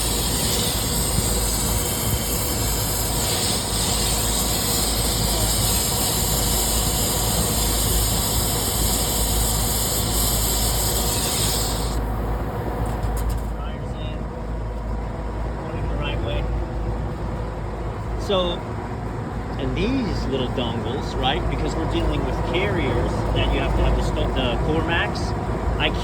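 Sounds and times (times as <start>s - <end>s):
torch flame hissing: 0.0s - 13.4s.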